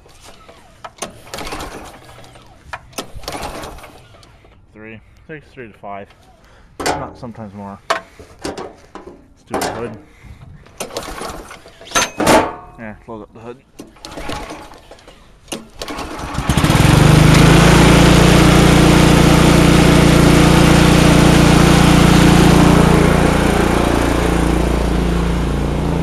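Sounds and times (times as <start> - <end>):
snowblower engine running: 15.8 - 26.0.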